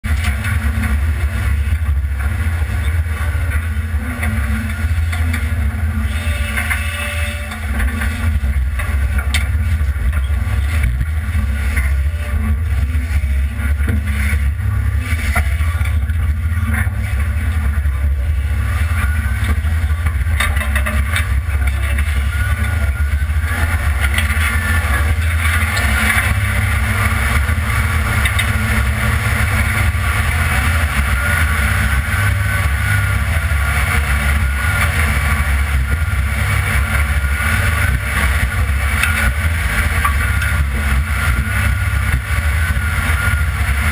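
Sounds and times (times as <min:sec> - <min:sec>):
truck engine rumbling: 0:00.0 - 0:43.9
knocks and rattles: 0:18.8 - 0:43.9.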